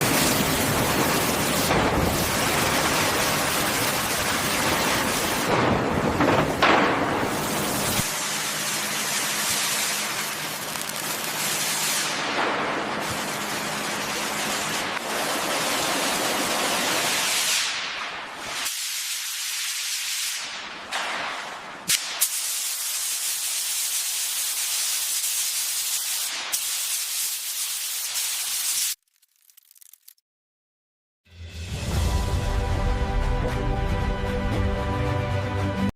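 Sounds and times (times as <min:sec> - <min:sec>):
loud rushing hissing noise: 0:00.0 - 0:12.4
pressure washer spraying water: 0:00.0 - 0:20.6, 0:21.9 - 0:29.0.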